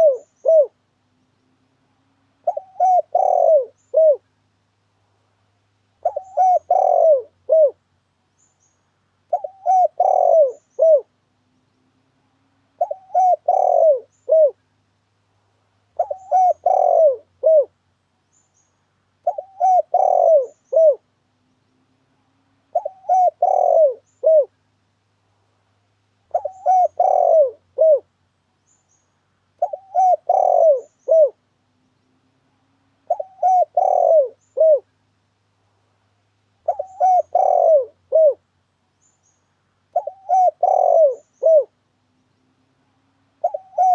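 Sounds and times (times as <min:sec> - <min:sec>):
dove cooing: 0:00.0 - 0:00.8, 0:02.4 - 0:04.3, 0:06.0 - 0:07.8, 0:09.3 - 0:11.2, 0:12.8 - 0:14.6, 0:16.0 - 0:17.8, 0:19.2 - 0:21.1, 0:22.6 - 0:24.6, 0:26.3 - 0:28.1, 0:29.6 - 0:31.5, 0:33.0 - 0:34.9, 0:36.6 - 0:38.4, 0:39.9 - 0:41.8, 0:43.4 - 0:43.9.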